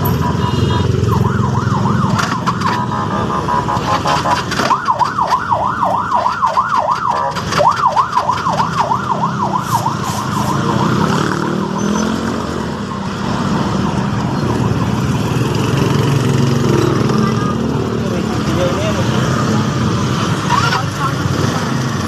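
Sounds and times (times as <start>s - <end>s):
warbling electronic alarm: 0.0s - 15.9s.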